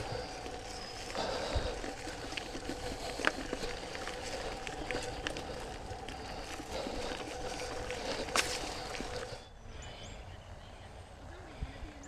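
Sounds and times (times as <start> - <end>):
bike tyre and frame rattle: 0.0 - 9.4
faint hum: 0.0 - 12.0.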